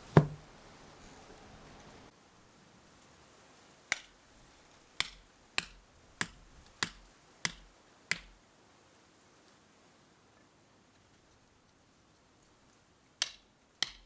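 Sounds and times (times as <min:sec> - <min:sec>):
sharp ringing knocks: 0:05.0 - 0:08.4, 0:13.2 - 0:14.0.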